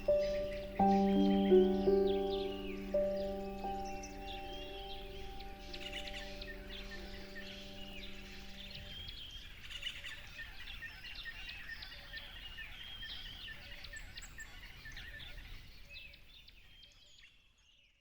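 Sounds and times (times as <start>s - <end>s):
held musical tone: 0.0s - 9.2s
songbirds chirping: 0.0s - 18.0s.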